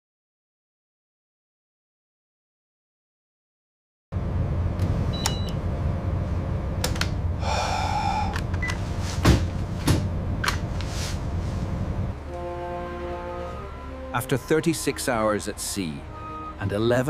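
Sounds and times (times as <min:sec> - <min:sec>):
low engine rumble: 0:04.2 - 0:17.0
heavy thuds: 0:08.9 - 0:11.6.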